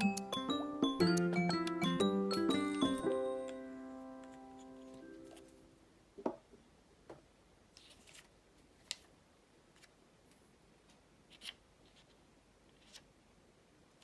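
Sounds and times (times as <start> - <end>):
paper rustling: 7.8 - 10.5.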